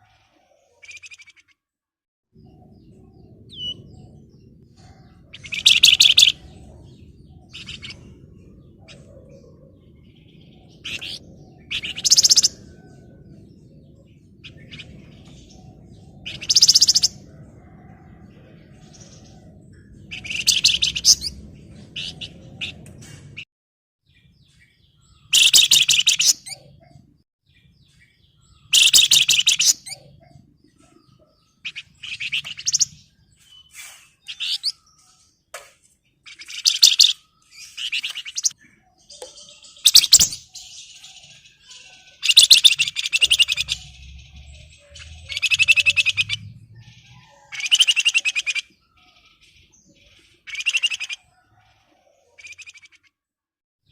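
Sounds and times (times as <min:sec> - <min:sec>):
songbird chattering calls: 0:05.3 - 0:06.5, 0:25.3 - 0:26.6, 0:28.6 - 0:30.1, 0:36.3 - 0:38.6, 0:39.2 - 0:48.7.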